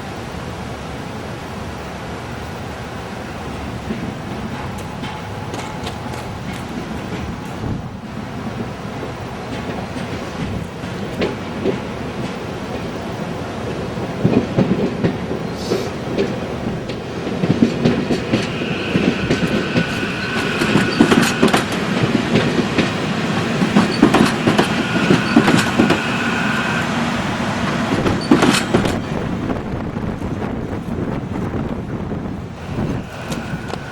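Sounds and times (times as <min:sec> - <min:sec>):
train wheels clicking over rail joints: 0:03.7 - 0:33.9
high wheel squeal: 0:18.0 - 0:29.2, 0:32.6 - 0:33.9.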